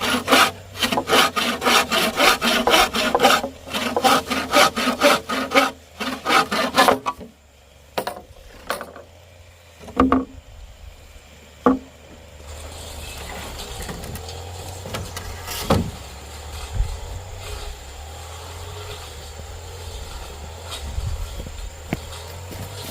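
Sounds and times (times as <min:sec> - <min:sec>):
wood being sawn by hand: 0:00.0 - 0:07.4, 0:11.6 - 0:22.9
engine-like drone: 0:05.6 - 0:22.9
sharp wooden knocks: 0:09.8 - 0:10.4, 0:11.6 - 0:11.9, 0:14.8 - 0:16.0.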